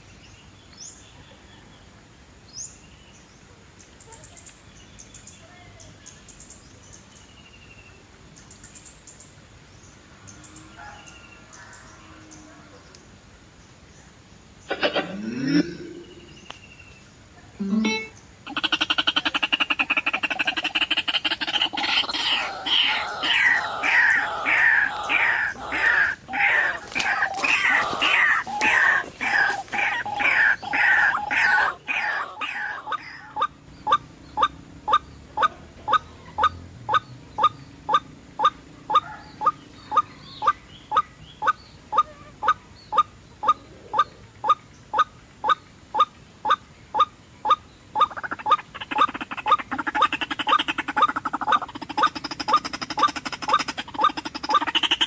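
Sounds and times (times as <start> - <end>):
bird short single notes: 17.6 - 18.3
bird harsh falling calls: 18.0 - 34.5.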